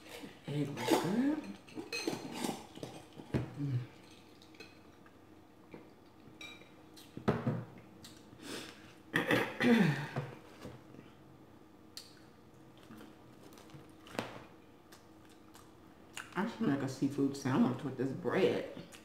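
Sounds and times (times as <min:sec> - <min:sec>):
woman humming: 0:03.5 - 0:03.9.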